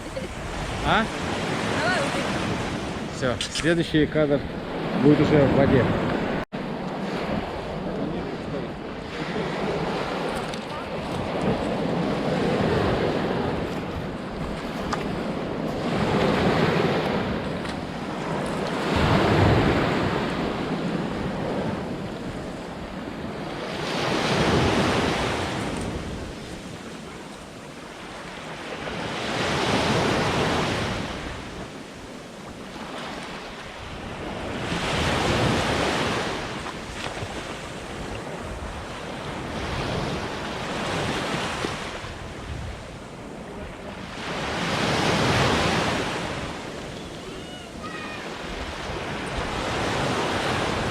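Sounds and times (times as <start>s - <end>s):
waves breaking on shore: 0.0s - 50.9s
wind on microphone: 4.4s - 27.6s, 33.8s - 50.9s.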